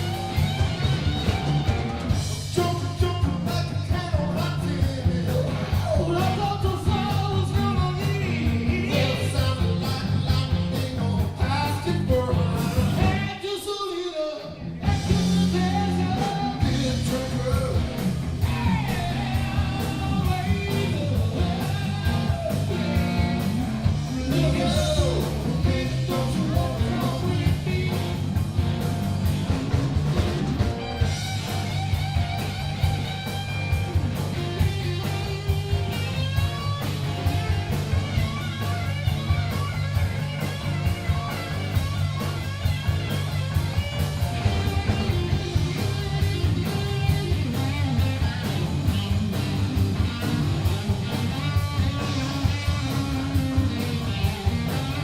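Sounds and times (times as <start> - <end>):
steady drum beat: 0.0 - 13.4, 14.8 - 55.0
bass guitar: 0.0 - 55.0
electric guitar: 0.0 - 55.0
person singing: 2.5 - 28.2.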